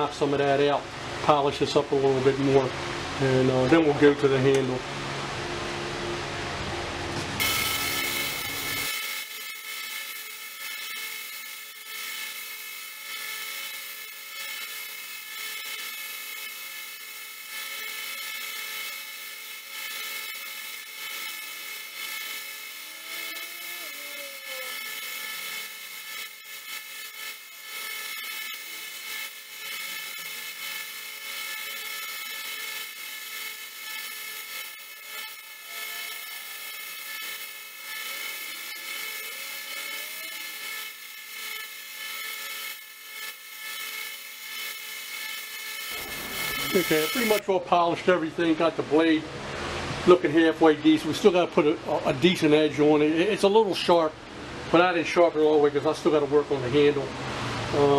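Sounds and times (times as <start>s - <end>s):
knife blade grinding on belt: 7.4s - 47.4s
belt sander whining: 7.4s - 47.5s.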